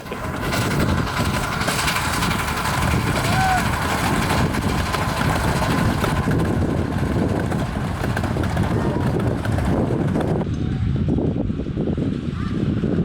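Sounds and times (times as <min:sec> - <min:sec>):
miniature steam train rumbling: 0:00.0 - 0:11.4
wind buffeting microphone: 0:00.0 - 0:13.0.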